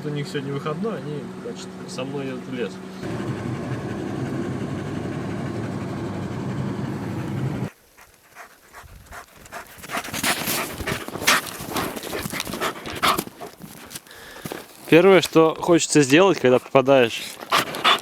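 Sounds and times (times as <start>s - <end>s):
car road and engine noise: 0.4s - 7.8s
dog panting: 6.9s - 18.0s.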